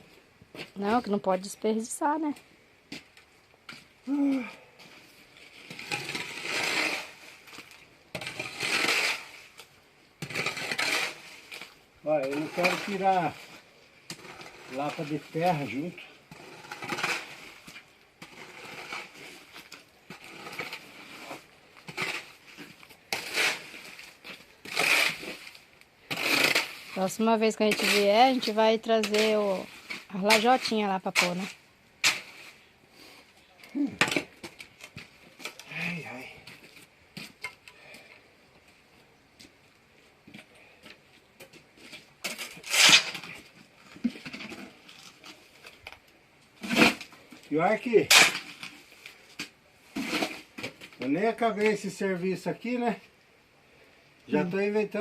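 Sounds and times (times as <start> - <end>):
mortar being scraped off ground: 4.9 - 33.3, 41.6 - 45.8, 46.6 - 51.1
trowel knocking and scraping mortar: 26.1 - 32.4.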